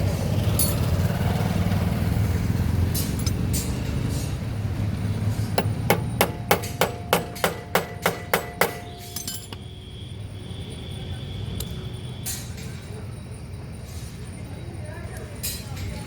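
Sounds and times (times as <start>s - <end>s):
hammer striking ringing metal: 5.6s - 9.7s.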